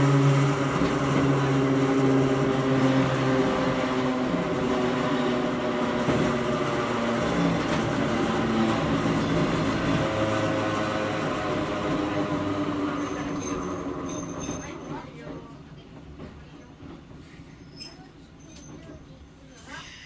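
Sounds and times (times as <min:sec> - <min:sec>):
electric train motors humming: 0:00.0 - 0:14.1
wheels on track: 0:00.0 - 0:15.1.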